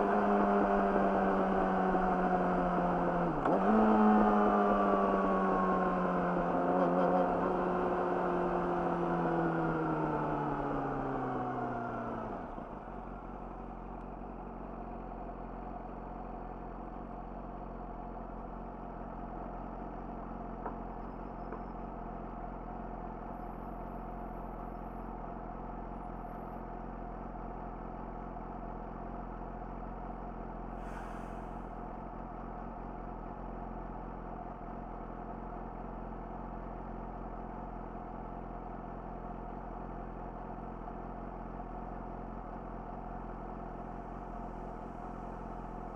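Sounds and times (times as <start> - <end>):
motorcycle engine idling: 12.8 - 45.9
brief hiss: 30.8 - 31.7.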